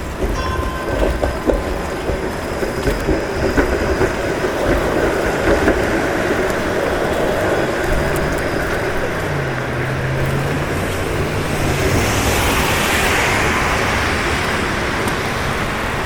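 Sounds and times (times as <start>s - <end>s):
traffic passing on snowy road: 2.5s - 16.0s
vehicle engine hum: 3.5s - 16.0s.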